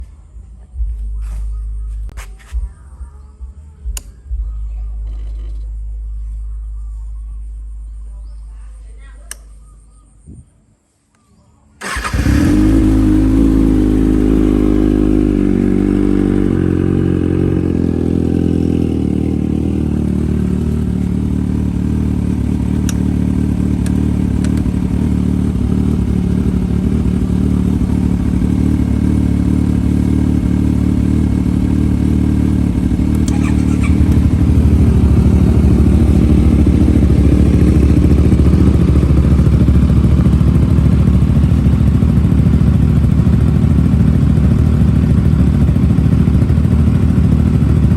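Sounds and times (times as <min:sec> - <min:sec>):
motorcycle engine idling: 0:11.8 - 0:47.9.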